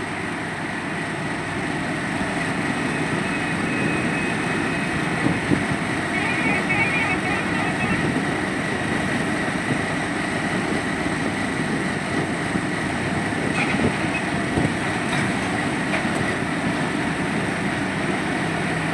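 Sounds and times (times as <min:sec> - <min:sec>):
excavator engine rumble: 0:00.0 - 0:18.9
high whine: 0:02.6 - 0:09.9.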